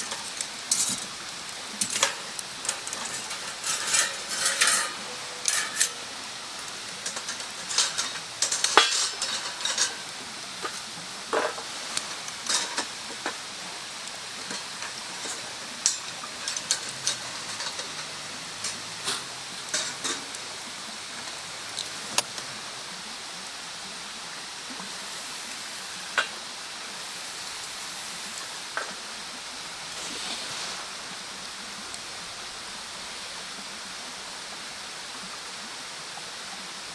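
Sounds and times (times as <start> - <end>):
bonfire crackling and popping: 0.0 - 32.0.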